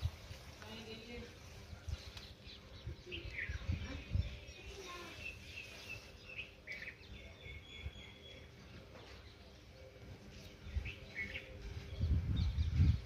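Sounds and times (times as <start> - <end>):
small birds chirping and whistling: 1.3 - 13.0
low microphone rumbles: 10.6 - 13.0.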